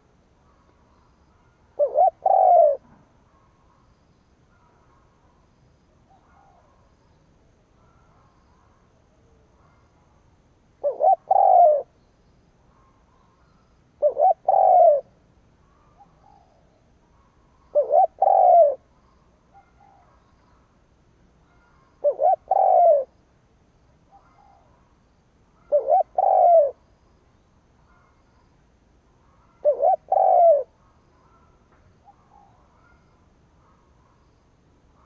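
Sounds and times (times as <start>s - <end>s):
dove cooing: 1.4s - 3.1s, 10.8s - 11.9s, 14.0s - 15.2s, 17.2s - 20.2s, 21.6s - 23.2s, 25.6s - 26.8s, 29.3s - 33.0s.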